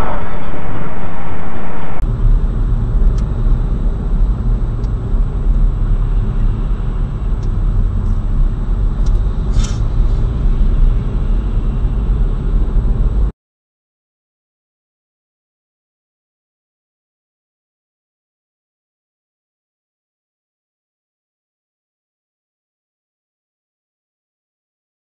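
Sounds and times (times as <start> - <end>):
vehicle driving rumble: 0.0 - 13.3.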